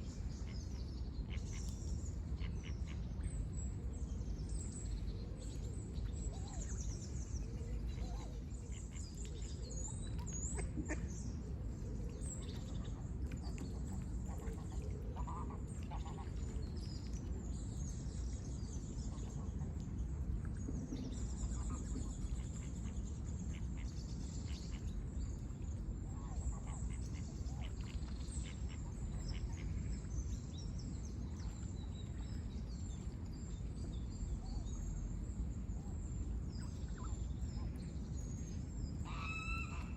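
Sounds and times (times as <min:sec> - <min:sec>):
lower bird calls: 0:39.0 - 0:39.9.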